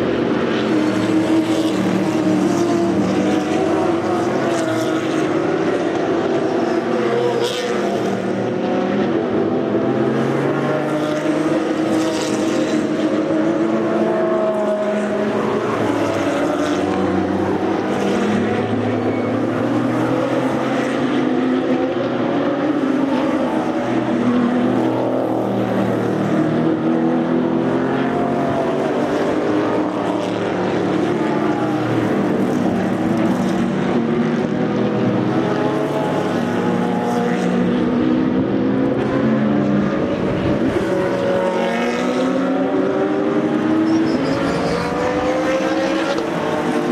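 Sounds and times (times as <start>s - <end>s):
race cars passing: 0.0s - 46.9s.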